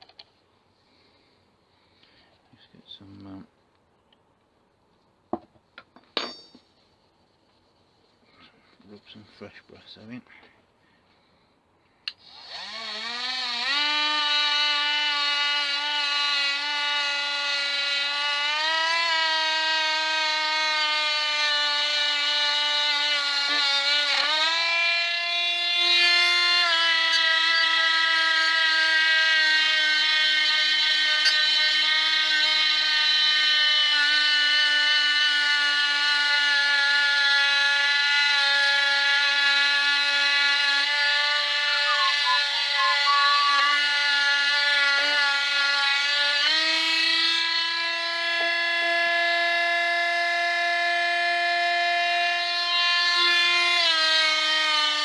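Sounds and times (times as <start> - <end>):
grinder polishing disc whine: 40.6 - 49.3.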